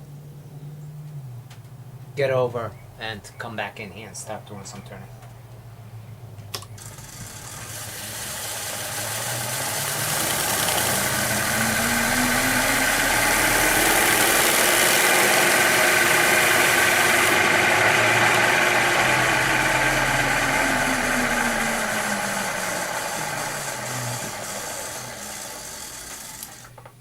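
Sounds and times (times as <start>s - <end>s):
motor running: 6.6s - 27.0s.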